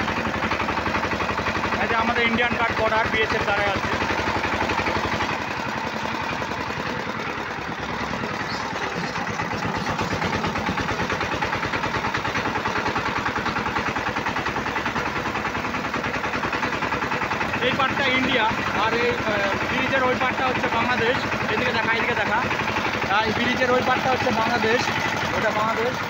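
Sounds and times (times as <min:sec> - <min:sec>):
diesel engine chugging: 0:00.0 - 0:26.0.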